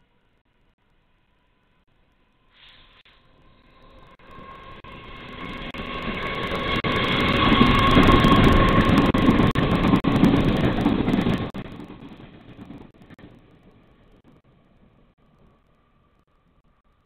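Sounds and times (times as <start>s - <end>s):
train whine: 0.0s - 17.0s
passenger train passing: 3.2s - 16.2s
wheels clicking over rails: 4.2s - 16.2s.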